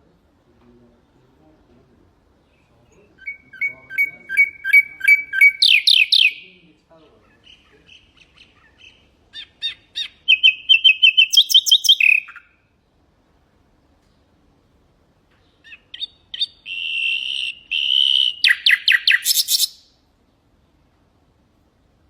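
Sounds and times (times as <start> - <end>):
nightingale singing: 2.4 - 12.9, 15.3 - 20.0.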